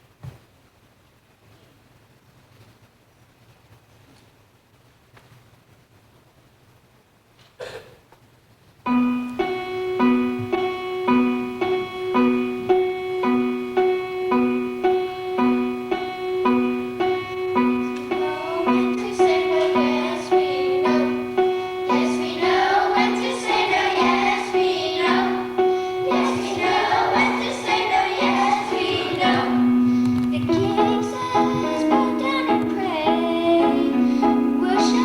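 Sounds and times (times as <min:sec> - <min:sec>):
children's choir singing: 0:09.4 - 0:35.0.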